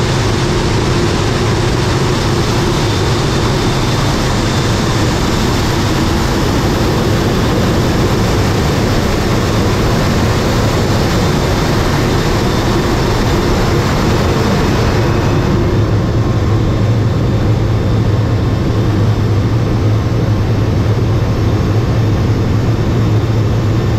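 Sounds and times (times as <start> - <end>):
rush of air: 0.0 - 18.2
airplane engine noise: 0.0 - 23.9.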